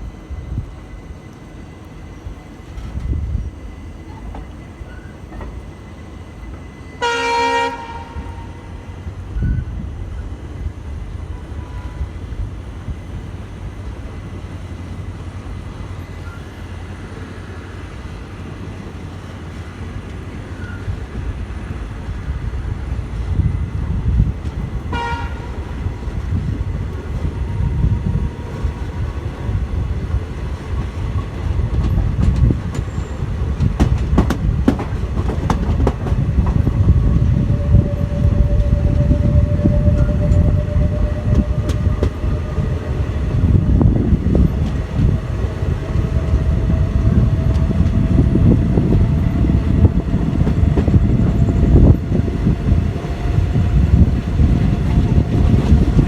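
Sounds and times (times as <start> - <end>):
train rumbling: 0.0 - 56.0
rail clicks: 0.4 - 10.3, 11.4 - 56.0
train horn toot: 6.9 - 9.7, 11.3 - 12.3, 24.8 - 25.8, 37.1 - 43.0.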